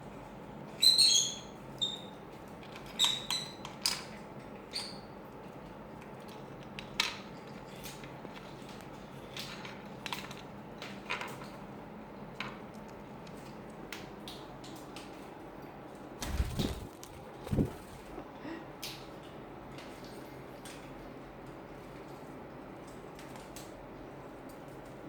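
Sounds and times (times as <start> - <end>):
steady low hum: 15.5 - 20.6.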